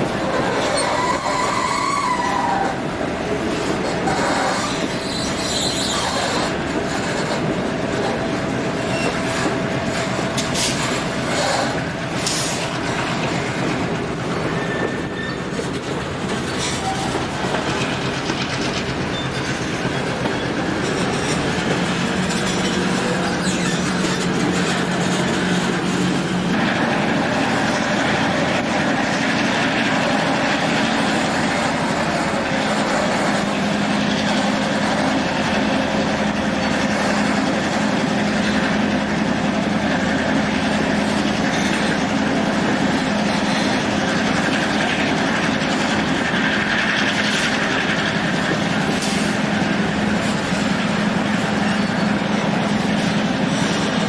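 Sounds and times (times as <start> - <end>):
diesel locomotive drone: 0.0 - 54.0
train wheels rumbling on rail: 0.0 - 54.0.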